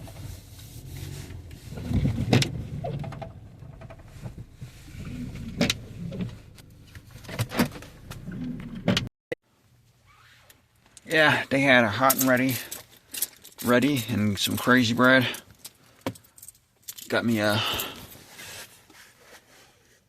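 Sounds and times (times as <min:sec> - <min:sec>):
car interior rumble: 0:00.0 - 0:09.1.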